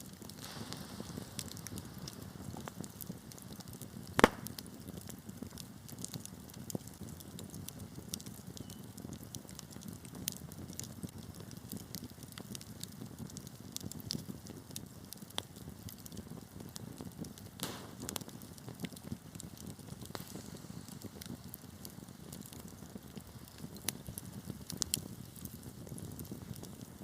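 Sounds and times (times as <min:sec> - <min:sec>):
fire crackling and popping: 0:00.0 - 0:27.0
wood fire rumbling: 0:00.0 - 0:27.0.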